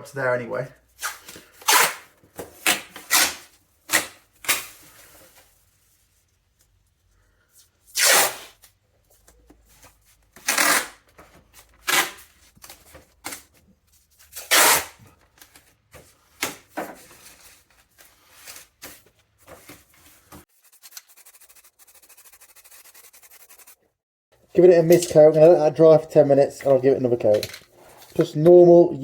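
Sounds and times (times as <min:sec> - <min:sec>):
masking tape ripping: 0:01.0 - 0:02.0, 0:02.6 - 0:04.7, 0:08.0 - 0:08.6, 0:10.4 - 0:11.0, 0:11.8 - 0:12.2, 0:14.4 - 0:15.0.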